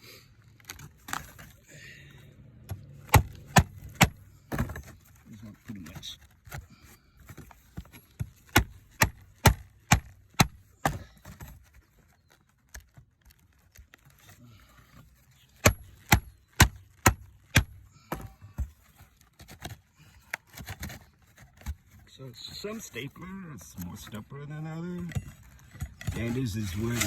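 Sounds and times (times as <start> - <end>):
hammer striking steel pry tool: 2.7 - 4.2, 8.5 - 10.6, 15.6 - 18.2.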